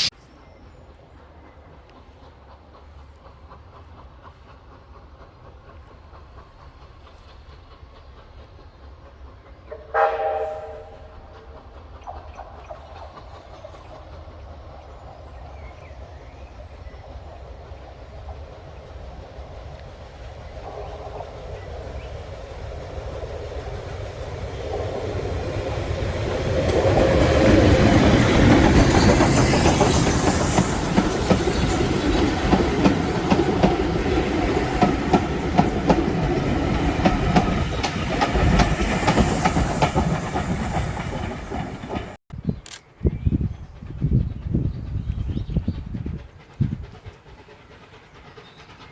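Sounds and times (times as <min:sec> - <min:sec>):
train passing: 0:00.0 - 0:42.2, 0:43.4 - 0:48.9
wheels clicking over rail joints: 0:10.6 - 0:42.2.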